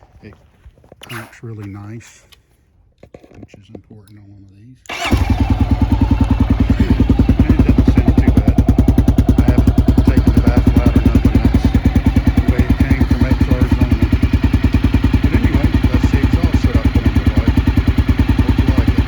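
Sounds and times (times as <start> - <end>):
motorcycle engine idling: 4.9 - 19.0.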